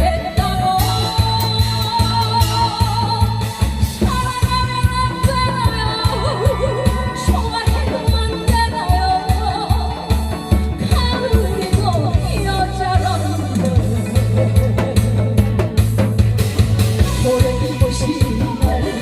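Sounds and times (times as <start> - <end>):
amplified backing track with beat: 0.0 - 19.0.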